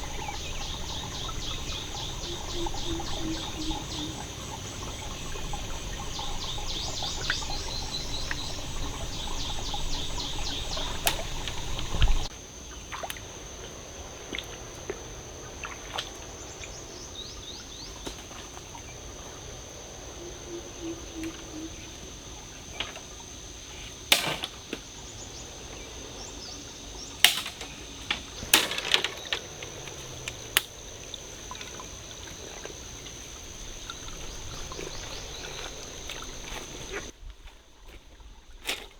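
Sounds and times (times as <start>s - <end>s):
birds chirping: 0.0s - 12.3s, 25.1s - 37.1s
high insect whine: 0.0s - 37.2s
sharp clicks and knocks: 27.3s - 30.7s.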